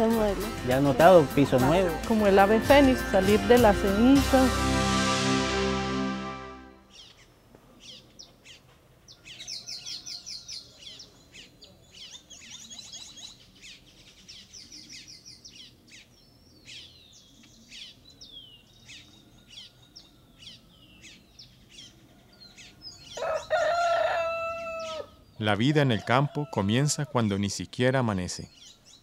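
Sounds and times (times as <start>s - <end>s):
small birds singing and chirping: 6.9s - 29.0s.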